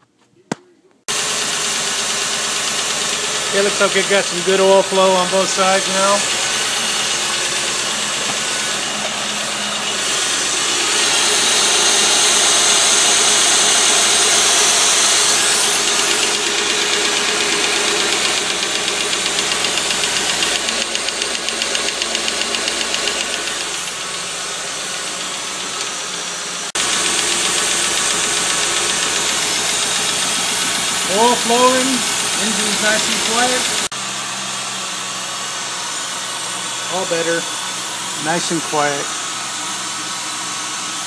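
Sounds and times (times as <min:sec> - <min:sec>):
car engine running: 0:01.1 - 0:40.9.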